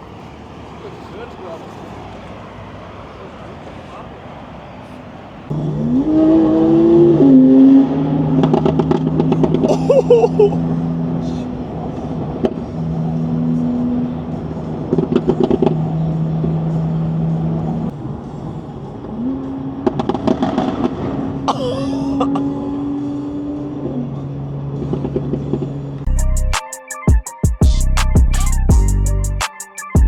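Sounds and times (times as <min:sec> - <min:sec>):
car engines humming: 0:00.0 - 0:26.5
exhaust crackle: 0:05.4 - 0:21.5
engine revving: 0:05.5 - 0:17.9.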